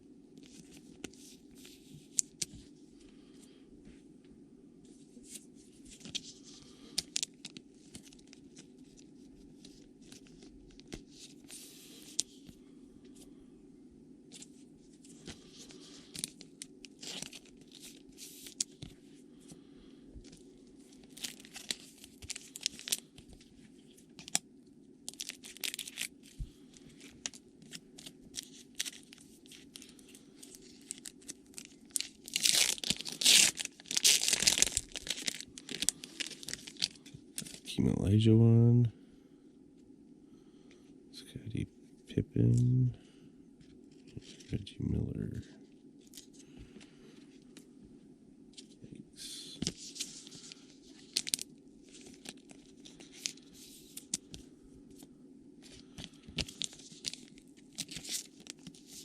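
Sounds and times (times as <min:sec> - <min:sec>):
faint low hum: 0:00.0 - 0:59.0
wrapper torn and crinkled: 0:16.1 - 0:18.7, 0:21.0 - 0:23.1, 0:25.1 - 0:26.2, 0:27.0 - 0:37.7, 0:49.7 - 0:54.2, 0:56.3 - 0:59.0.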